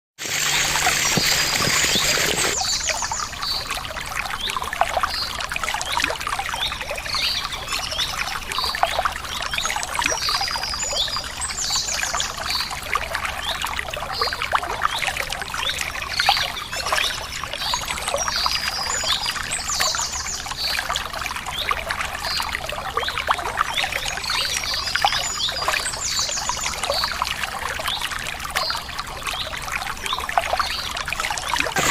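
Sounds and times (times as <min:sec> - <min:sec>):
waterfall splashing: 0:00.2 - 0:02.6, 0:31.7 - 0:31.9.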